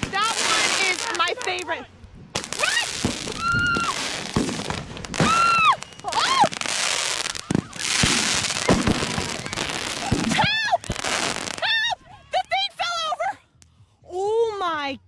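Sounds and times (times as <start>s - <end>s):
firework bangs: 0.0s - 1.6s, 2.3s - 11.6s
firework crackling hiss: 0.0s - 1.7s, 2.4s - 11.8s.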